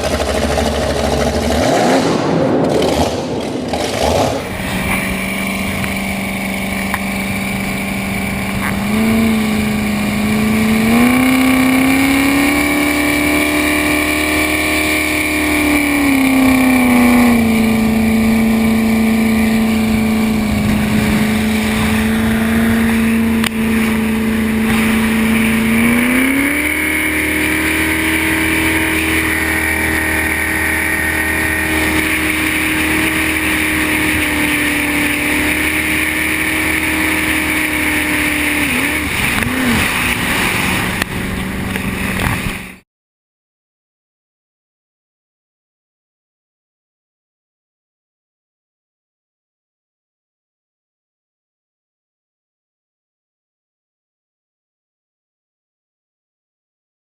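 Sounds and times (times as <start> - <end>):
loud rushing noise: 0.0 - 13.0, 13.7 - 42.8
boat engine running: 0.0 - 42.8.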